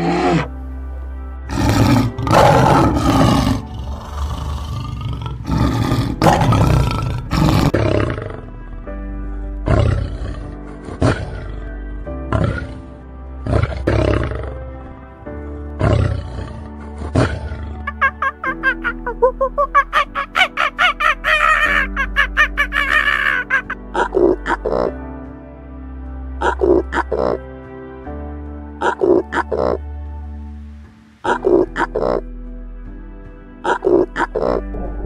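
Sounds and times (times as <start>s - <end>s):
big cat roaring: 0.0s - 0.5s, 1.5s - 8.5s, 9.7s - 11.7s, 12.3s - 12.8s, 13.4s - 14.5s, 15.8s - 18.6s, 33.7s - 35.0s
background music: 0.0s - 35.0s.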